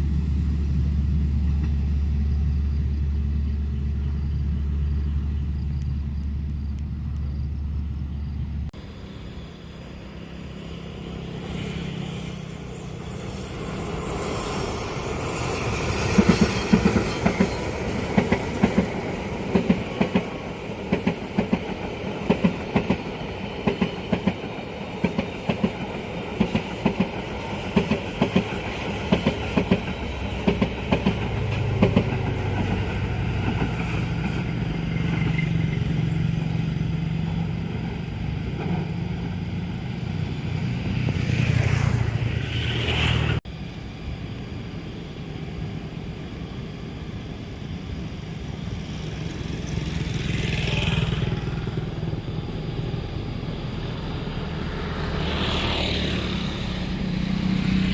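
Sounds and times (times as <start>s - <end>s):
train wheels clattering: 11.2s - 39.4s
steady engine hum: 48.6s - 57.9s.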